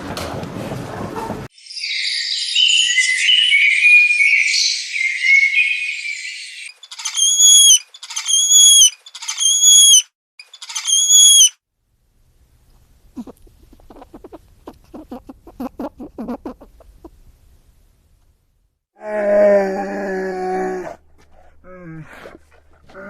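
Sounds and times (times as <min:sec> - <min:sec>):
high-pitched animal chirping: 0:01.6 - 0:11.6, 0:13.2 - 0:17.2
high whistled animal calls: 0:01.8 - 0:10.1, 0:10.7 - 0:11.6.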